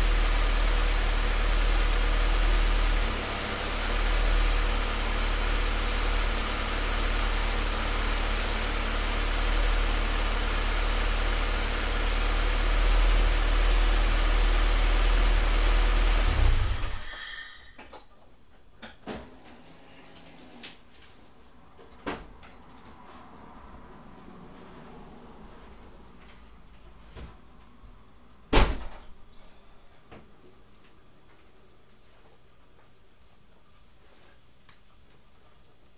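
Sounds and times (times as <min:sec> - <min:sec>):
door slamming shut: 0:28.5 - 0:29.2.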